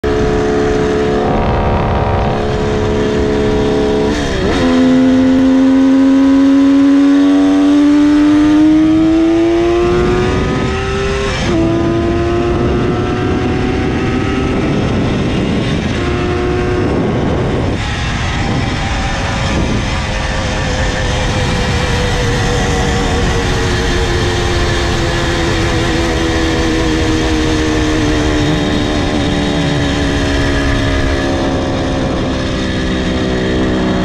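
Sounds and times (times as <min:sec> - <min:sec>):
motorcycle engine accelerating: 0:00.0 - 0:34.0
wind rush on microphone: 0:00.0 - 0:34.0.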